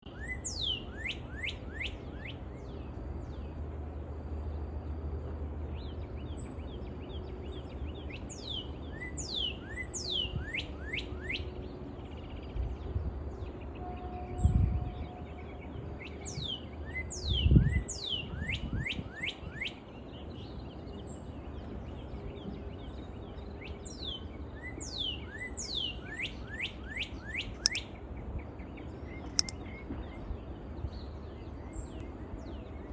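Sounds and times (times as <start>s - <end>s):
sharp clicks: 29.3s - 29.6s.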